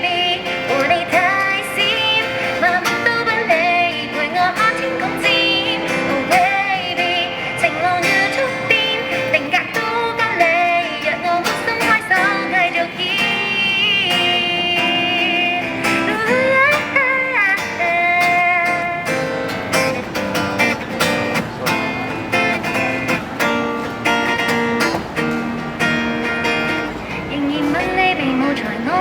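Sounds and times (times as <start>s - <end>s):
person singing wordless notes: 0.0s - 19.5s, 27.0s - 29.0s
acoustic guitar strumming: 0.0s - 29.0s.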